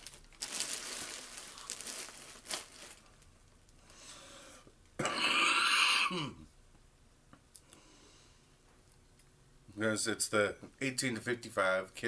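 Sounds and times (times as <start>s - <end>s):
tearing of plastic: 0.0s - 3.3s
plastic packing crinkling: 0.0s - 3.8s.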